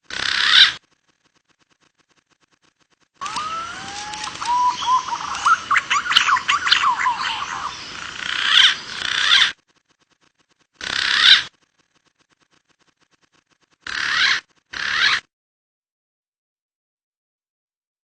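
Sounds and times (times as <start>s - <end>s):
birds chirping and whistling: 3.2s - 9.6s, 10.8s - 11.5s, 13.9s - 15.2s.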